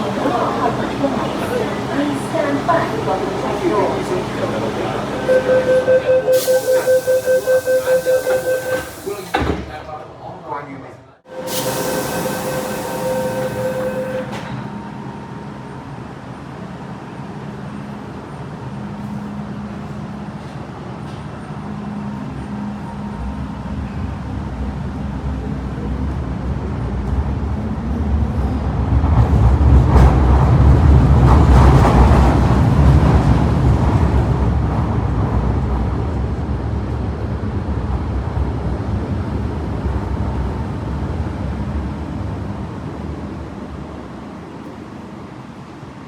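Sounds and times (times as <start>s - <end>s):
electric train pulling away: 0.0s - 9.6s, 11.3s - 16.0s.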